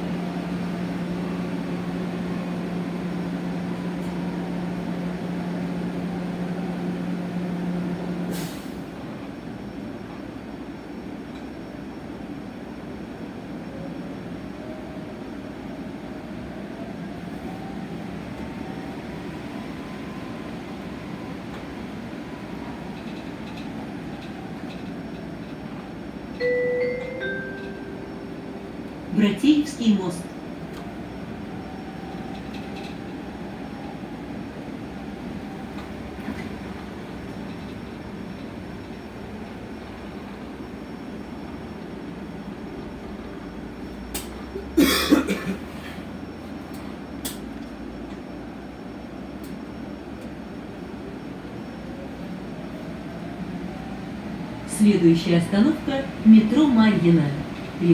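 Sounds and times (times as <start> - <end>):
bus cabin running noise: 0.0 - 57.9
two-note descending chime: 26.4 - 28.7.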